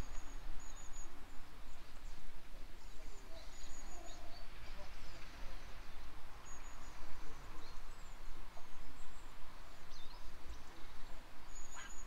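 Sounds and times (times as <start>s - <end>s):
background hiss: 0.0s - 12.0s
faint bird chirps: 2.8s - 12.0s.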